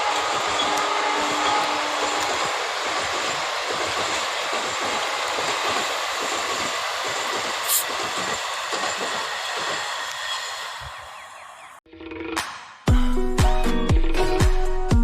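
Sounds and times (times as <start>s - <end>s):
train wheels clickety-clack: 0.0s - 10.3s
brief sharp hiss: 7.6s - 7.9s.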